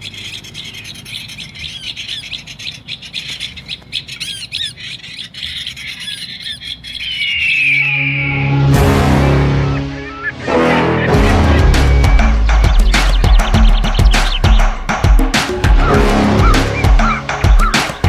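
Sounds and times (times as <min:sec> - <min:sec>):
bird chirping rapidly: 0:00.0 - 0:08.7, 0:09.7 - 0:18.0
background music with low tones: 0:07.4 - 0:18.0.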